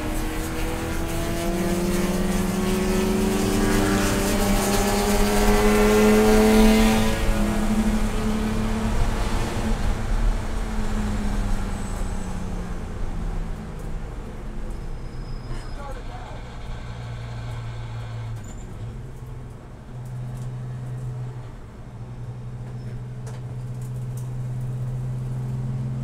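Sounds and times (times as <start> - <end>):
race car engine pulling hard: 0.0 - 13.6, 14.3 - 19.1.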